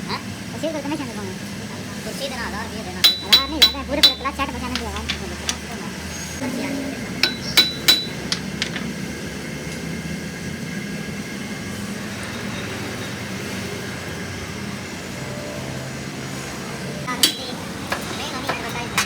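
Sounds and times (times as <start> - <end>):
engine humming: 0.0 - 19.0
sharp metal clinks: 3.0 - 4.4, 7.2 - 8.4.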